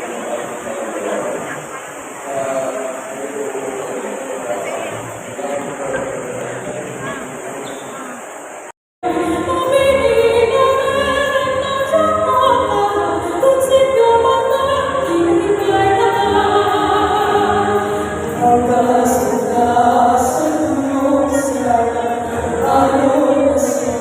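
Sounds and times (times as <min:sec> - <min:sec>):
choir singing slow song: 0:00.0 - 0:08.0, 0:09.0 - 0:24.0
musical accompaniment: 0:09.0 - 0:24.0.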